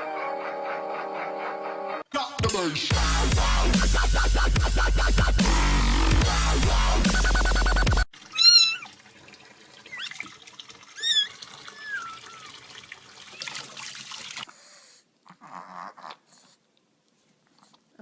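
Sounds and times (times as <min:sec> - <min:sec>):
cat meowing: 0:08.3 - 0:08.9.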